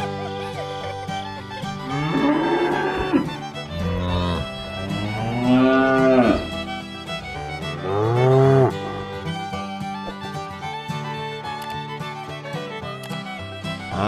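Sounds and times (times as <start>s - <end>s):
background music: 0.0s - 14.0s
cow mooing: 1.8s - 6.6s, 7.8s - 9.0s.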